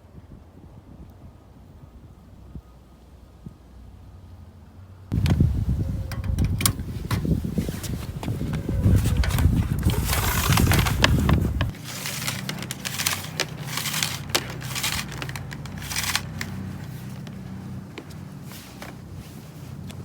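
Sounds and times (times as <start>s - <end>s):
wind buffeting microphone: 5.1s - 20.0s
material crinkling and rustling: 7.0s - 20.0s.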